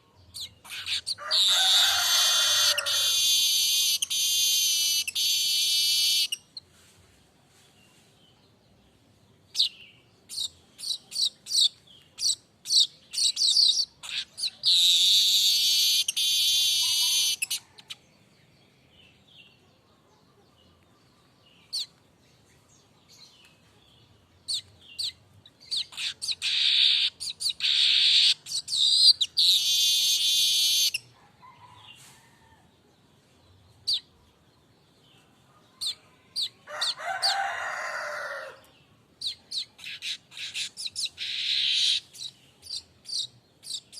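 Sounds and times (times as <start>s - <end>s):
weaver bird ticking and trilling: 0.0s - 6.6s, 9.4s - 18.0s, 20.8s - 22.1s, 24.4s - 31.1s, 35.8s - 43.9s.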